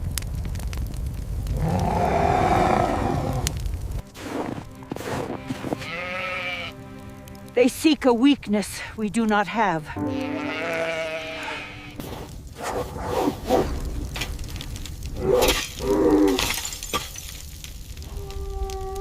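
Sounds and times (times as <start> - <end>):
sheep bleating: 5.0 - 6.8, 10.0 - 12.0
sharp cracks: 11.9 - 19.0.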